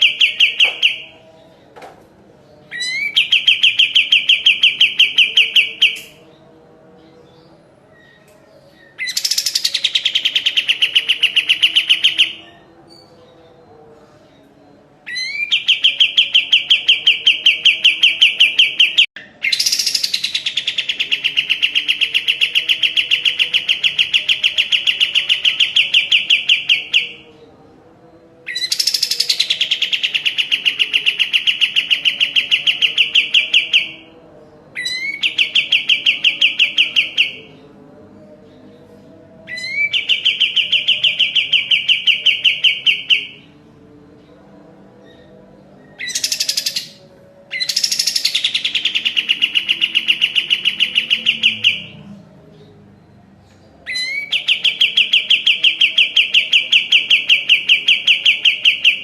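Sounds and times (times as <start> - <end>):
bird singing fast trills: 0.0 - 1.2, 2.7 - 6.3, 8.8 - 13.1, 28.5 - 34.2, 46.0 - 52.0.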